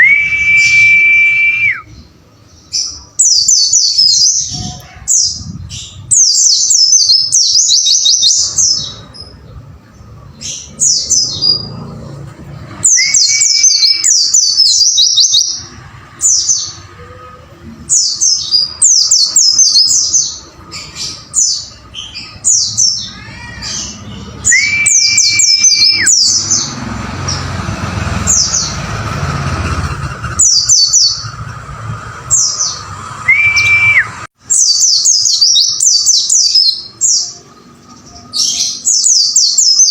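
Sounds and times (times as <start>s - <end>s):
bird whistled note: 0.0s - 2.0s, 33.2s - 34.3s
bird high chirps: 1.8s - 11.8s, 12.8s - 27.5s, 29.9s - 31.6s, 32.3s - 39.9s.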